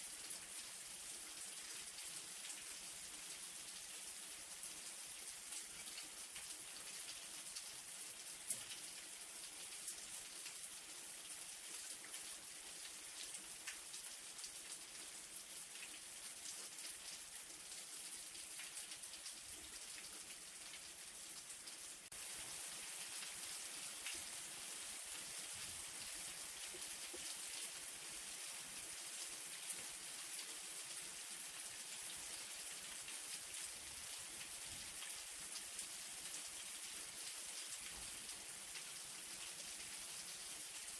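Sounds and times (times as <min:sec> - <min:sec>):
rain hissing: 0:22.0 - 0:27.1.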